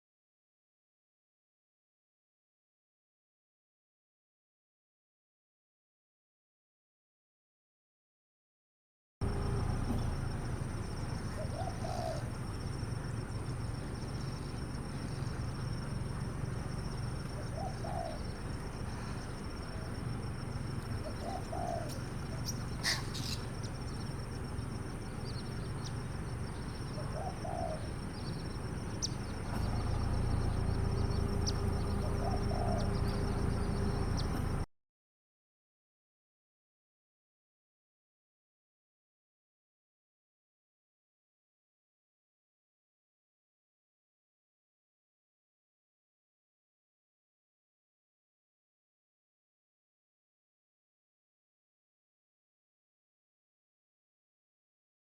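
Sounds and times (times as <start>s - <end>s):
bird calling: 9.2s - 34.6s.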